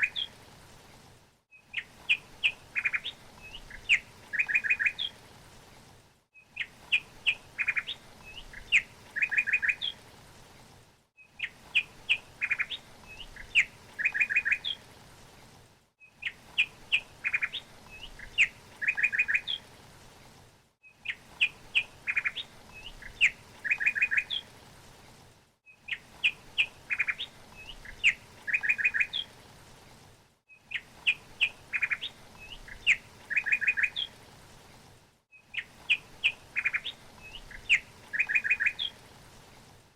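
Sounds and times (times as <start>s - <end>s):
songbird chirps and trills: 0.0s - 0.4s, 1.5s - 5.4s, 6.3s - 10.5s, 11.2s - 15.4s, 16.0s - 19.8s, 20.8s - 24.7s, 25.6s - 29.4s, 30.5s - 34.3s, 35.3s - 39.2s.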